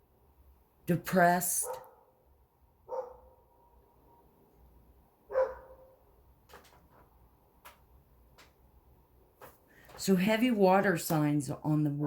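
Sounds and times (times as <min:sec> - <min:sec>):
dog-like barks: 0:01.6 - 0:02.1, 0:02.9 - 0:03.4, 0:05.3 - 0:06.0.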